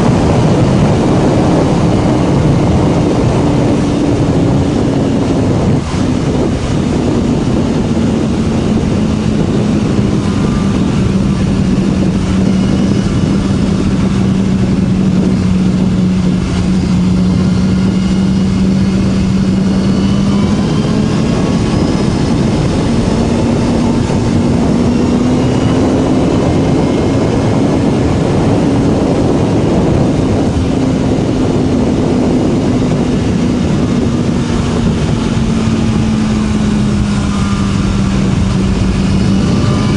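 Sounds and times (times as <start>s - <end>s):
motorcycle engine under load: 0.0s - 39.9s
wind and road noise: 0.0s - 39.9s.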